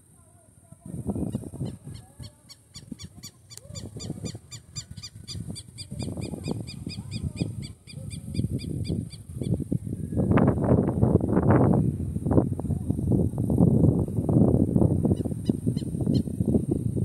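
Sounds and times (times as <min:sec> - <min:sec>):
gusty low rumble: 0:03.9 - 0:17.0.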